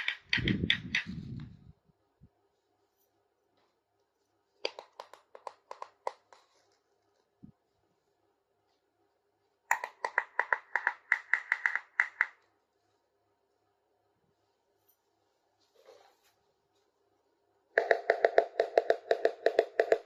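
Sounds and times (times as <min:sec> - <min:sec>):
plastic toy pieces tapping: 0:00.0 - 0:01.1, 0:04.6 - 0:06.5, 0:09.7 - 0:12.4, 0:17.8 - 0:20.0.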